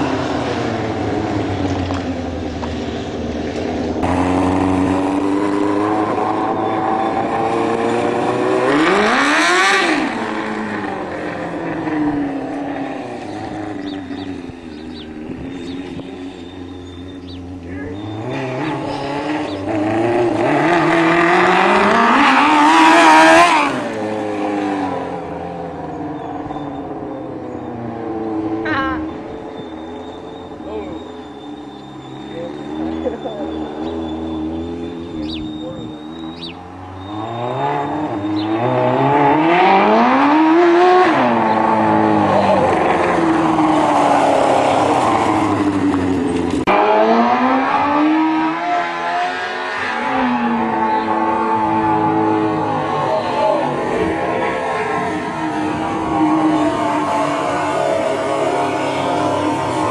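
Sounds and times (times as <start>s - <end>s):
go-kart engine passing by: 0.0s - 59.9s.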